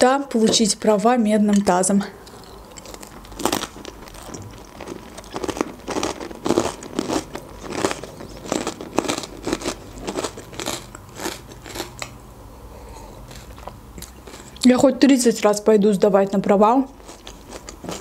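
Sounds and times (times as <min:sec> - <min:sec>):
crunchy chewing: 0:02.2 - 0:12.2, 0:12.8 - 0:14.6, 0:16.9 - 0:18.0.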